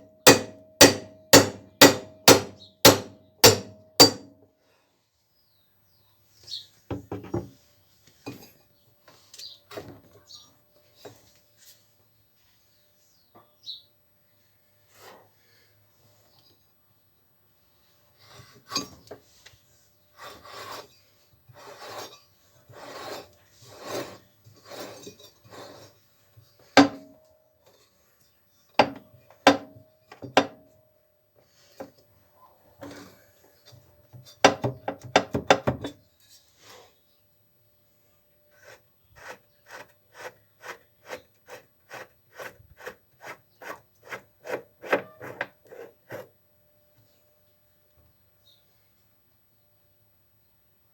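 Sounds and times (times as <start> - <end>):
sharp metallic knock: 0.3 - 4.3, 26.8 - 27.2
rasping scraping on hard surface: 20.1 - 26.2, 38.5 - 46.3.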